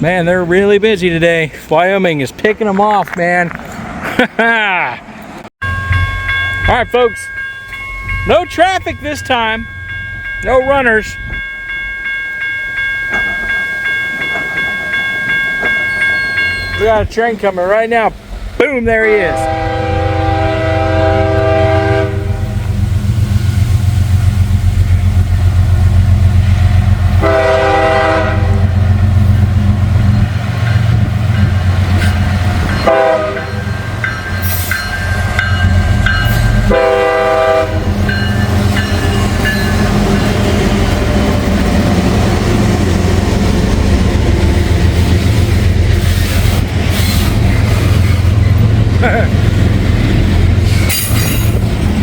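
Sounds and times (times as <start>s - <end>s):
locomotive engine rumble: 0.0s - 52.0s
train wheels clattering on rails: 12.8s - 16.9s, 37.9s - 52.0s
locomotive horn blasts: 19.3s - 22.6s, 27.1s - 28.8s, 32.8s - 33.8s, 35.7s - 39.2s.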